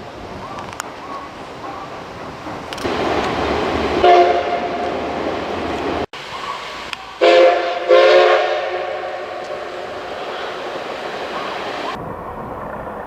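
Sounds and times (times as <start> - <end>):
steam locomotive whistle: 4.0 - 4.9, 6.3 - 10.6.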